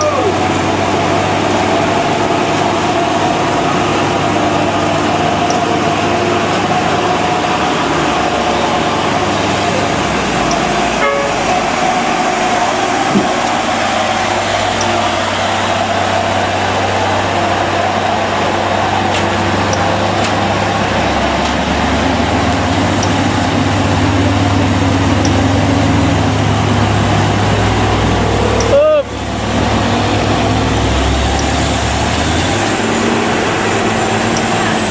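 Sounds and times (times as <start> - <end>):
truck diesel engine pulling uphill: 0.0 - 34.9.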